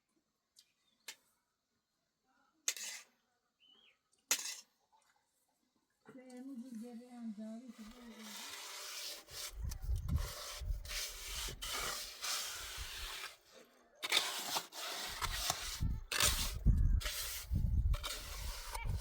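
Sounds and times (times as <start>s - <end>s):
rubbing and scraping strokes: 7.4s - 19.0s.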